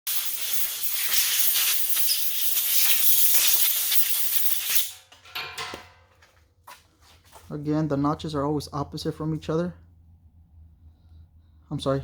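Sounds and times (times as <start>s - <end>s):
pressurized gas hissing: 0.1s - 4.9s.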